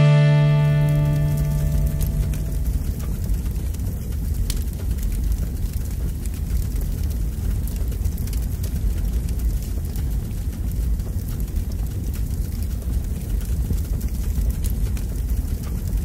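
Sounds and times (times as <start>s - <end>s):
campfire crackling: 0.0s - 16.0s
steady low rumble: 0.0s - 16.0s.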